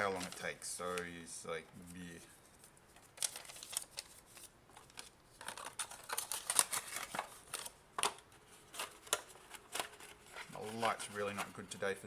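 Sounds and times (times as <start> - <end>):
packaging rustling: 2.6 - 12.0.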